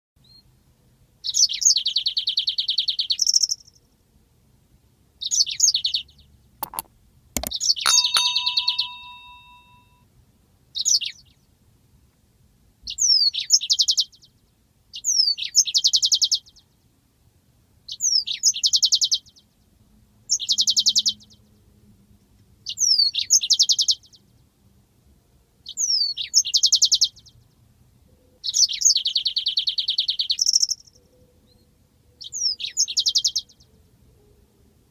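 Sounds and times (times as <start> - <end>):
sharp clicks: 6.6 - 9.7
canary singing: 7.9 - 9.9.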